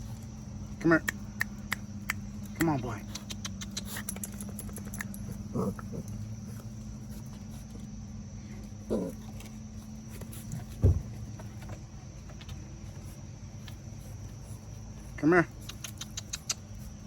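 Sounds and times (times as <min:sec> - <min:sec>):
steady low hum: 0:00.0 - 0:17.0
sharp low thump: 0:10.8 - 0:11.1.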